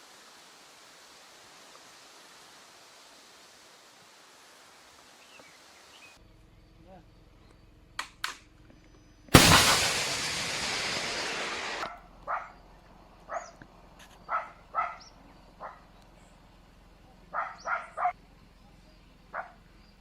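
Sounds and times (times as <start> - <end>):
loud blast with rushing roar: 9.4 - 11.9
dog barking: 11.8 - 12.6, 13.3 - 13.6, 14.3 - 15.9, 17.3 - 18.2, 19.3 - 19.6.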